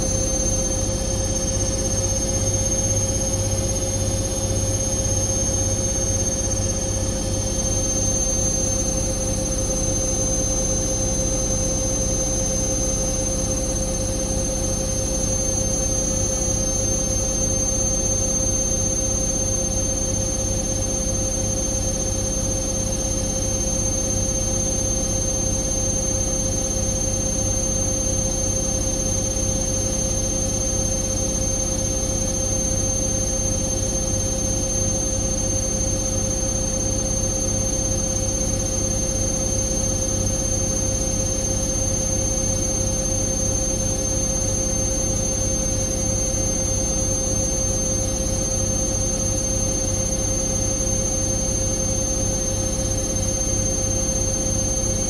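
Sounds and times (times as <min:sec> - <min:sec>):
washing machine spinning: 0:00.0 - 0:14.5.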